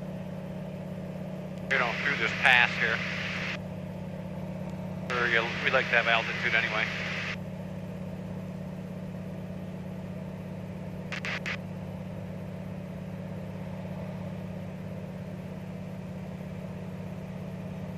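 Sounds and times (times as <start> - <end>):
airplane engine droning: 0.0 - 17.9
short clicks: 11.2 - 11.6.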